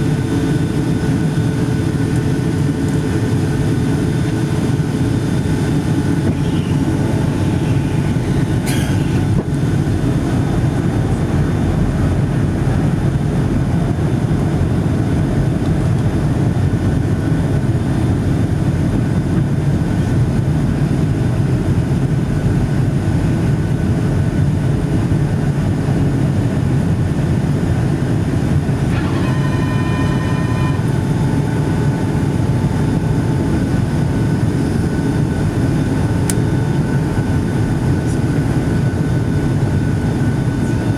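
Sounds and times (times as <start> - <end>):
airliner cabin engine noise: 0.0 - 40.9
short ringing tone: 5.2 - 9.4, 28.8 - 33.9.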